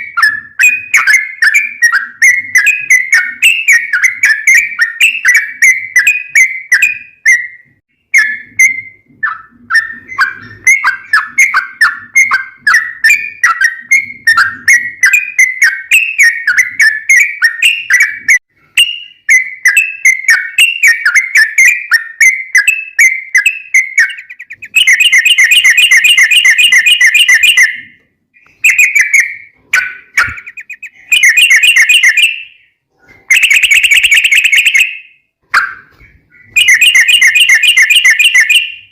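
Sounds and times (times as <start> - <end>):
bulbul singing chattering notes: 23.3 - 27.9, 28.5 - 32.6.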